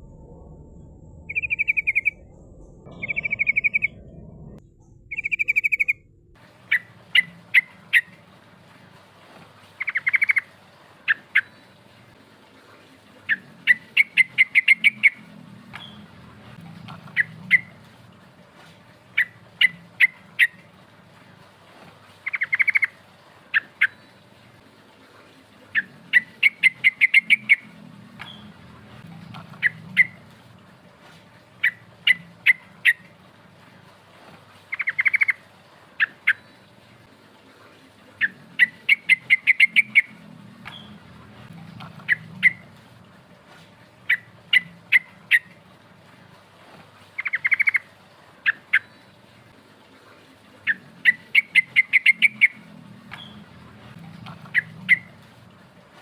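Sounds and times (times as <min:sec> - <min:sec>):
bird singing chirping notes: 0:00.0 - 0:08.2, 0:38.2 - 0:41.0.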